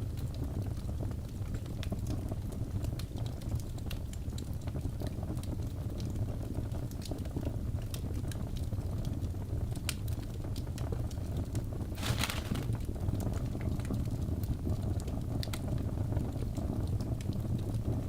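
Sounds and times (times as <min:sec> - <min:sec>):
logs crackling and popping: 0:11.5 - 0:13.9.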